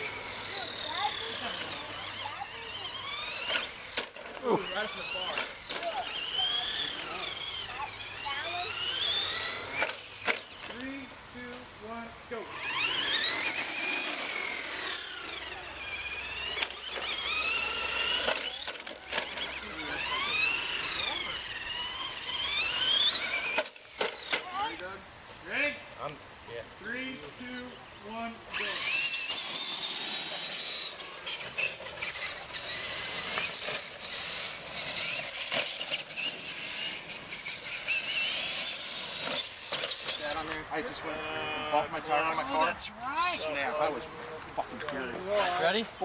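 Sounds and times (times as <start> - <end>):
toy trucks knocking: 0.0 - 10.8, 12.5 - 24.6, 28.8 - 40.6
electric motor whine: 0.0 - 11.1, 11.9 - 25.0, 27.2 - 46.0.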